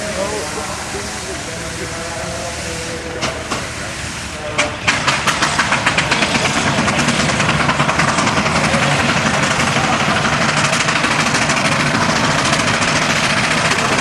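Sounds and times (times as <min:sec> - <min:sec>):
steam engine exhaust chuffs: 0:00.0 - 0:14.0.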